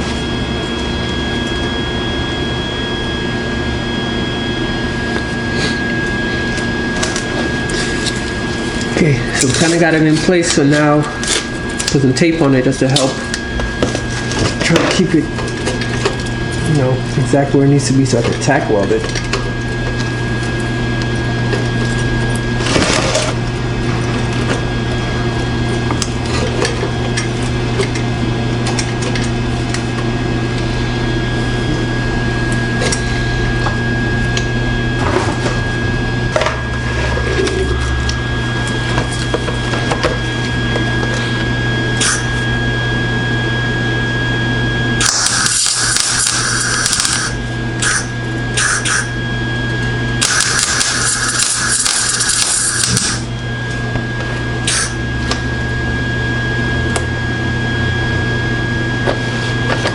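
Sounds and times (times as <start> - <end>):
steady low hum: 0.0 - 59.9
crackling welding: 45.0 - 49.1, 50.2 - 53.3.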